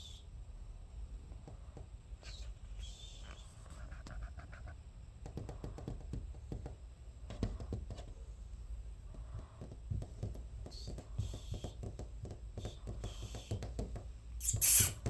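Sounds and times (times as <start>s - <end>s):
parrot chirping: 14.4s - 15.0s.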